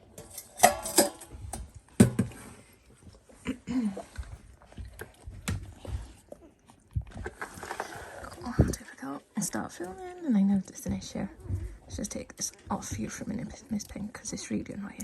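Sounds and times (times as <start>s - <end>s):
puppies shuffling: 1.2s - 15.0s
puppy whining: 9.8s - 10.4s.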